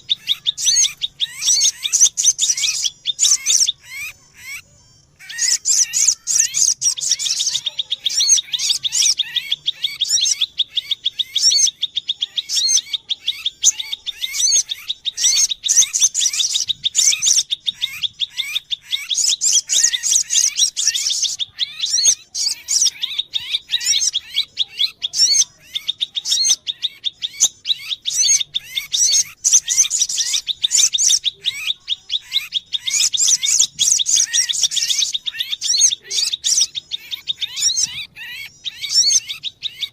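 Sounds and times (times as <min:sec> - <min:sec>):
bird chirping rapidly: 0:00.0 - 0:39.9.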